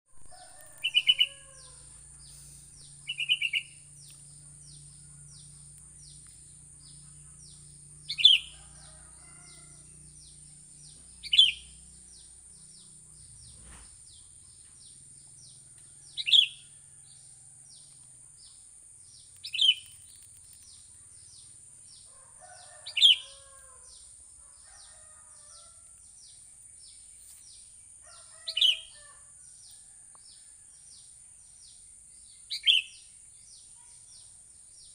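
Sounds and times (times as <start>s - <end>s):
rapid high ticking chirp: 0.3s - 22.0s
steady high hiss: 0.4s - 14.2s
bulbul calling: 0.8s - 8.6s, 11.0s - 11.8s.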